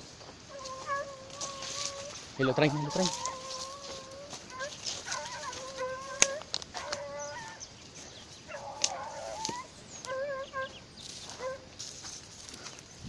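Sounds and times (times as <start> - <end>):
dogs yelping: 0.5 - 7.8, 8.4 - 11.8.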